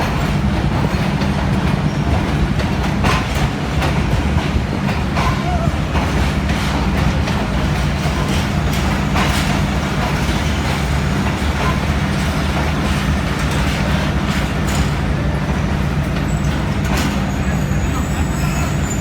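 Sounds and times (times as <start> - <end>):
locomotive engine droning: 0.0 - 19.0
train clicks and knocks: 0.0 - 19.0.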